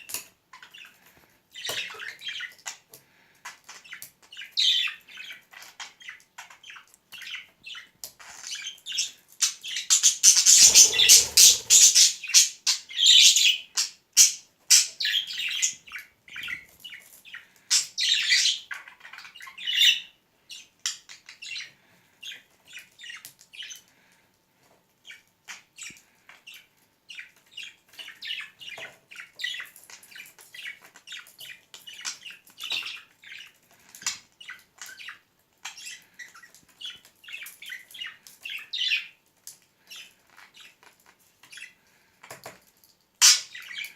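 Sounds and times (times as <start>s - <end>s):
budgerigar chirping and chattering: 9.6s - 13.6s.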